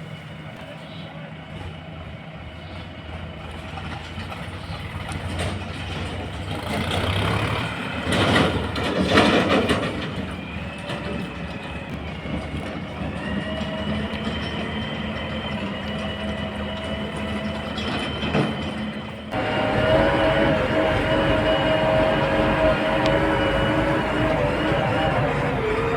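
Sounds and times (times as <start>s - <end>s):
heavy diesel engine running: 19.2s - 25.9s
thin whine: 19.4s - 25.9s.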